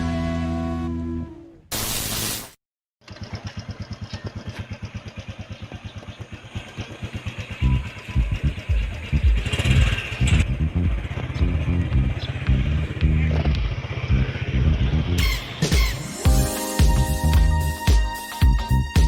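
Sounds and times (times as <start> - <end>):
burst of noise: 1.7 - 2.6
small motorcycle engine putter: 3.0 - 6.9.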